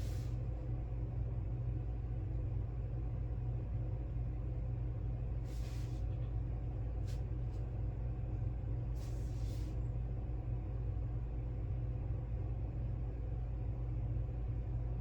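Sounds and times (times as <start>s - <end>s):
soft hissing rustles: 0.0s - 0.4s, 5.4s - 6.2s, 7.0s - 7.6s, 8.9s - 9.8s
low background hum: 0.0s - 15.0s.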